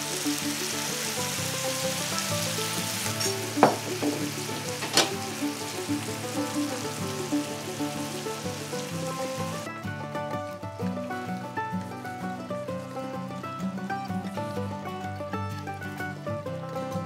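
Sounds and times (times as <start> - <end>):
noodles sizzling on hot plate: 0.0 - 9.7.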